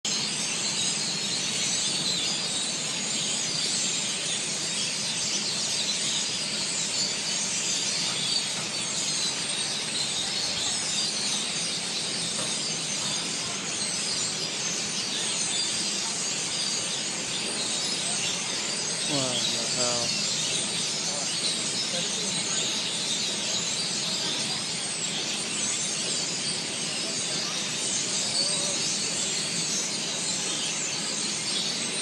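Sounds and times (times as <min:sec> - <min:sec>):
flock of birds chirping: 0:00.1 - 0:32.0.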